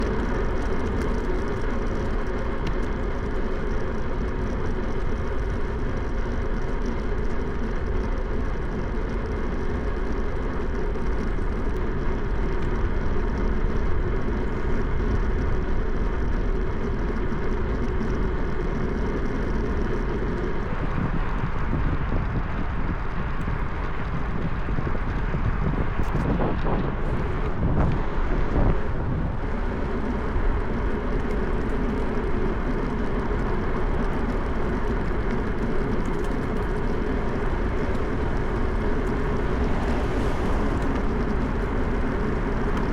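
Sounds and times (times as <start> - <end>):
road noise: 0.0 - 42.9
wind on microphone: 19.5 - 42.9.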